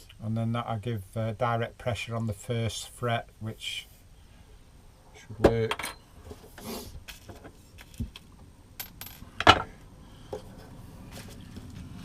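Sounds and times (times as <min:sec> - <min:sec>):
small metal parts clinking: 0:08.8 - 0:09.7.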